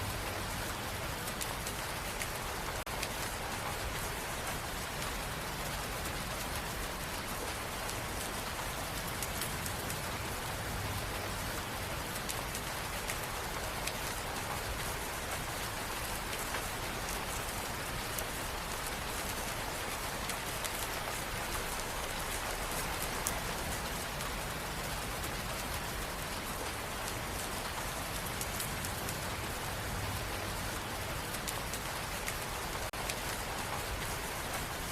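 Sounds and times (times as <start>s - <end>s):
rain hiss: 0.0s - 34.9s
raindrop ticks: 0.1s - 34.9s.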